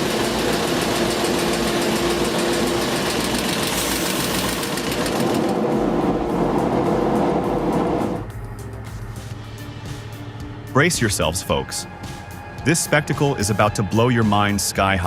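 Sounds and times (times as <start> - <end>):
frame saw cutting hardwood: 0.0 - 8.2.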